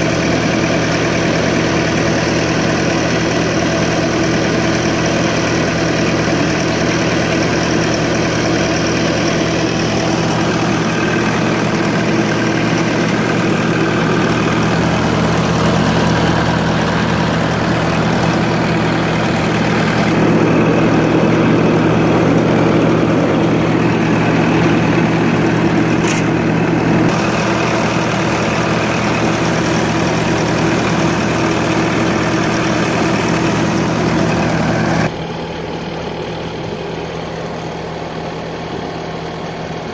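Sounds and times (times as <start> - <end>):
diesel engine idling: 0.0 - 39.9
brief click: 26.0 - 26.4.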